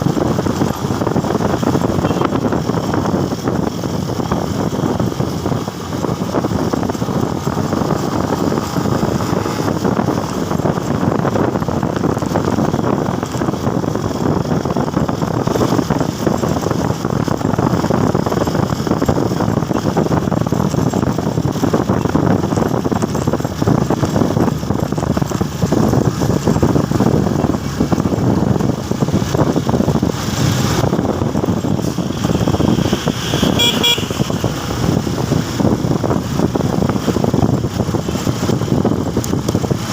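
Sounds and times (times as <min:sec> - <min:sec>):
motorcycle engine and road noise: 0:00.0 - 0:39.9
horn toots: 0:01.9 - 0:02.5, 0:32.9 - 0:34.5.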